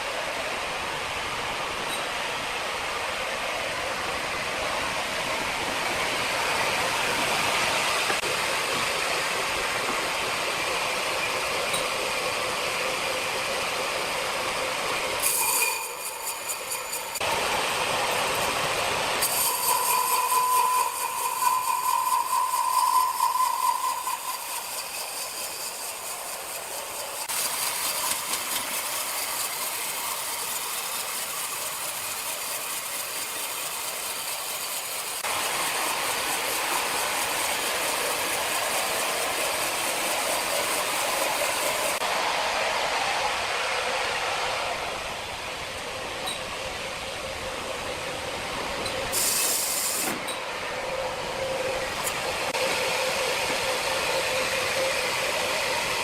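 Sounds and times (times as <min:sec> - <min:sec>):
mechanical whine: 0:00.0 - 0:42.2
sawmill saw grinding: 0:05.3 - 0:42.2, 0:47.6 - 0:56.0.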